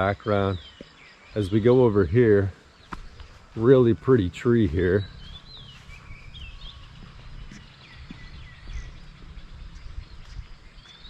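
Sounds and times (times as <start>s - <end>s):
low steady rumble: 3.4s - 11.0s.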